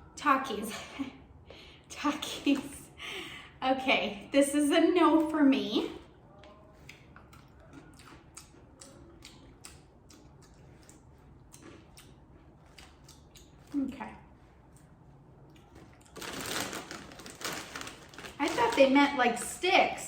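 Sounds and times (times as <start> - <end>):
crunchy chewing of snacks: 6.3 - 18.9.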